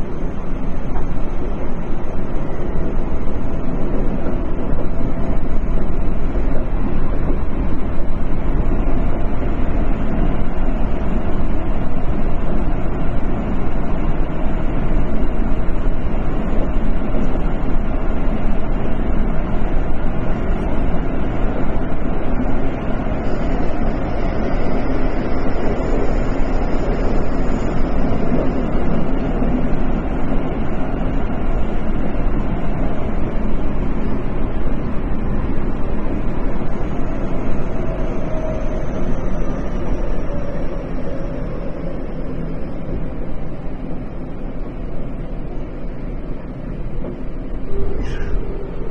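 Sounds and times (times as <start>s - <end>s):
train wheels rumbling on rails: 0.0s - 48.9s
faint high whine: 47.6s - 48.9s.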